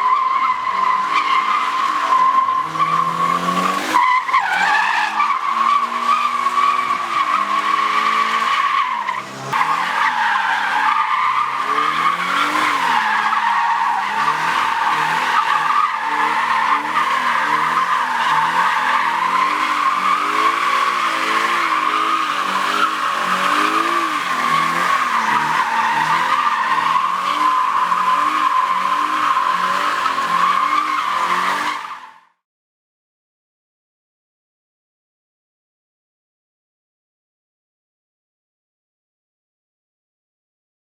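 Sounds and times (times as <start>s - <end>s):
car tyres squealing: 0.0s - 32.3s
car engine revving: 2.6s - 4.0s, 5.6s - 31.8s.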